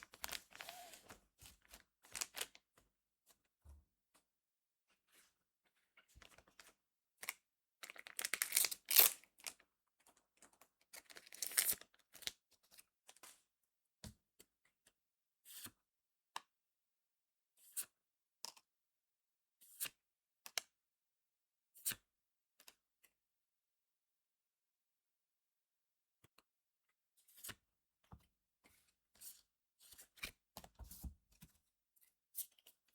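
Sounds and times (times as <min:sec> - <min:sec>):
foil pack tearing and crinkling: 0:00.0 - 0:01.1, 0:07.9 - 0:09.2, 0:11.2 - 0:11.8.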